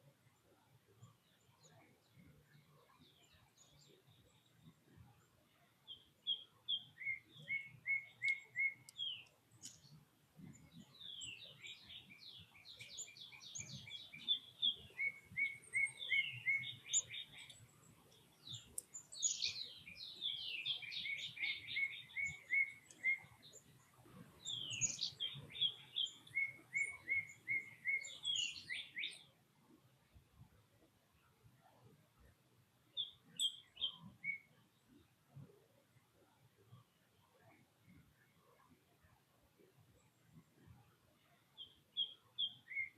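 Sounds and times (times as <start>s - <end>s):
songbird whistling: 6.3s - 9.3s, 12.8s - 17.5s, 20.3s - 23.4s, 24.4s - 29.2s, 33.0s - 34.5s, 42.0s - 42.9s.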